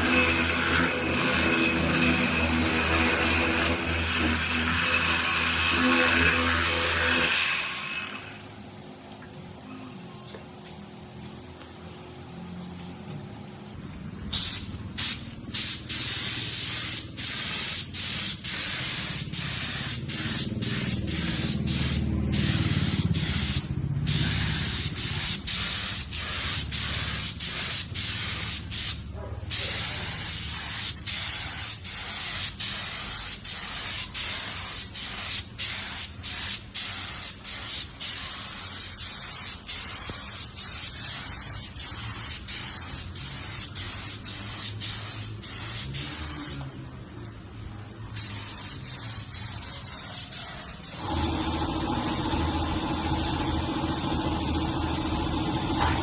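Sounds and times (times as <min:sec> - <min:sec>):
spray gun hissing: 0:14.4 - 0:46.6, 0:48.1 - 0:56.0.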